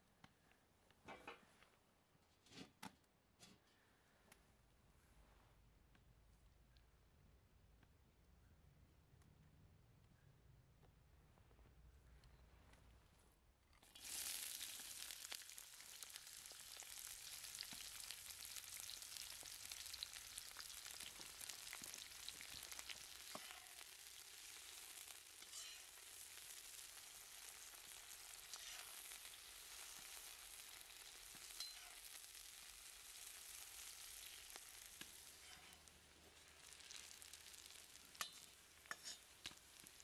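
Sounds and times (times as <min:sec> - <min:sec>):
onions sizzling in hot oil: 0:13.8 - 0:40.0.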